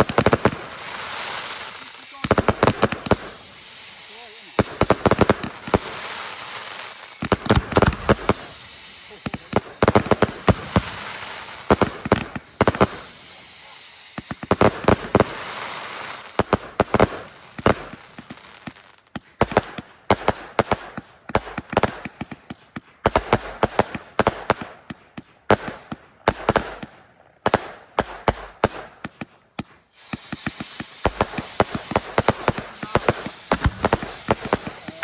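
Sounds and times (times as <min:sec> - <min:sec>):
high falling firework whistle: 0:00.0 - 0:18.3, 0:29.6 - 0:35.0
fireworks bangs: 0:00.0 - 0:35.0.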